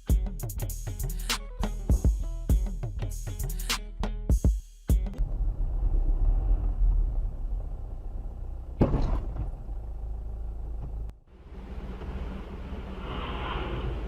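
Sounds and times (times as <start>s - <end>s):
car engine and road rumble: 5.2s - 14.0s.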